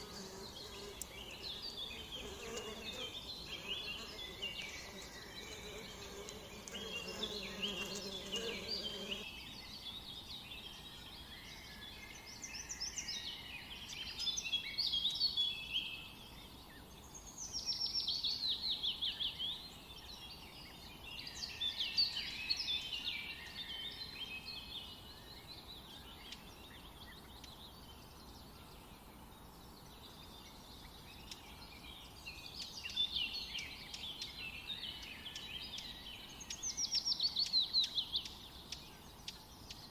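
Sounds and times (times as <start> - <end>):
buzzing insect: 0.0 - 9.2
songbirds chirping and singing: 0.0 - 39.9.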